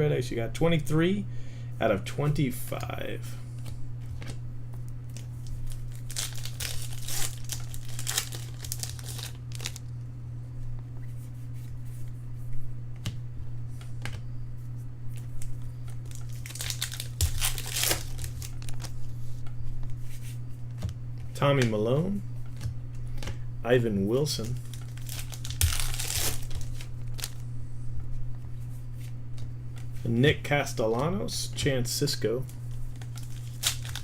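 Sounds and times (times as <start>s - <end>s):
wrapper tearing and crinkling: 5.1s - 9.9s, 16.0s - 19.0s, 24.4s - 27.4s, 32.9s - 34.0s.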